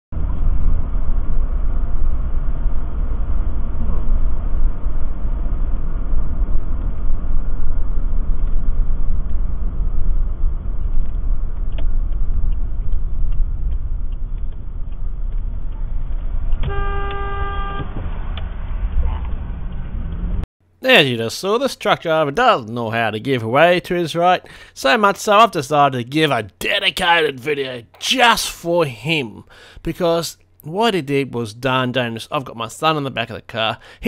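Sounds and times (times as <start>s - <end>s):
car road and engine rumble: 0.2s - 20.5s
light regular ticks: 11.0s - 16.2s
car horn: 16.6s - 18.1s.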